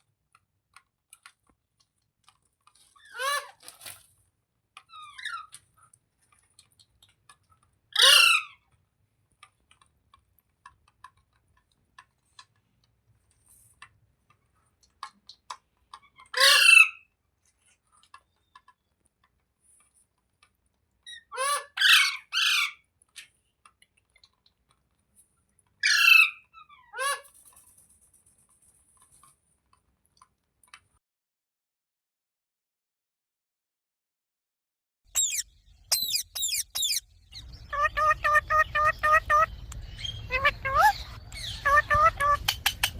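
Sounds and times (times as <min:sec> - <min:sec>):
parrot squawking: 0:08.0 - 0:08.6, 0:16.3 - 0:17.0, 0:21.1 - 0:22.8, 0:25.8 - 0:27.2, 0:35.2 - 0:42.9.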